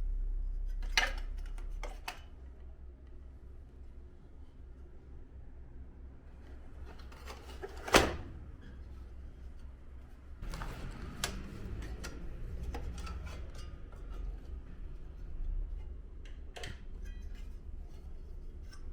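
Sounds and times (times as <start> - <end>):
handling noise with light clicks: 0.7 - 4.4, 8.7 - 18.9.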